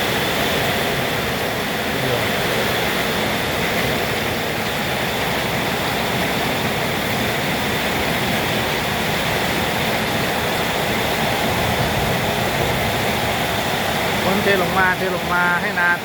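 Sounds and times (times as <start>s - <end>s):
heavy rain pouring: 0.0s - 16.0s
strong wind: 0.0s - 16.0s.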